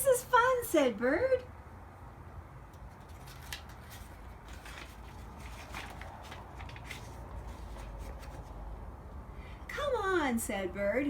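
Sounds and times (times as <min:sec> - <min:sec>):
clicks and rustles of handling: 0:02.7 - 0:08.7.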